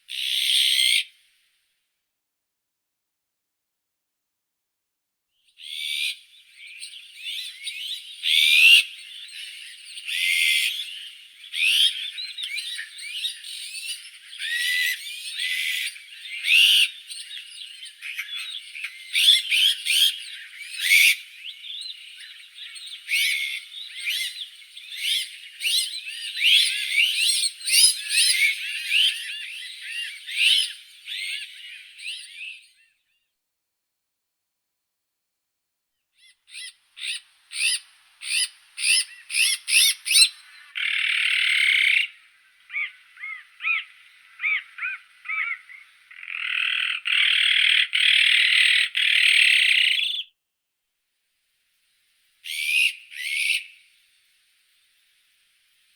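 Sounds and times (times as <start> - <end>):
harsh bird calls: 0.0 - 1.1, 5.6 - 32.8, 36.2 - 50.3, 52.4 - 53.9
magpies chirping: 0.1 - 1.1, 5.6 - 32.7, 36.2 - 50.3, 52.4 - 53.9.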